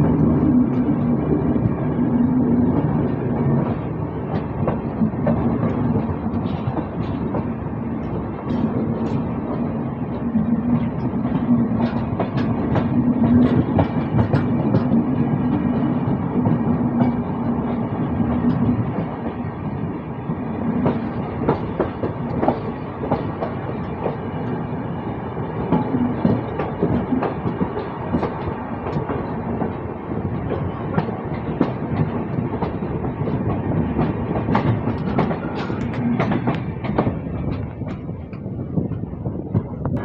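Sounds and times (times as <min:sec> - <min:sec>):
train wheels rumbling on rails: 0:00.0 - 0:40.0
wheels clacking over rail joints: 0:10.6 - 0:17.8, 0:25.6 - 0:40.0.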